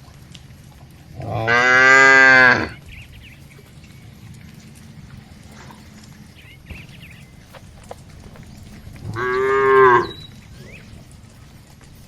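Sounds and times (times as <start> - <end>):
cow mooing: 1.2 - 2.8, 9.0 - 10.2.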